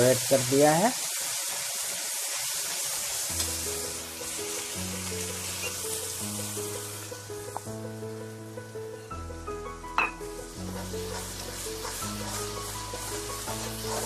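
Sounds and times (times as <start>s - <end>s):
paste sizzling in hot oil: 0.0s - 14.0s
background music: 3.4s - 14.0s.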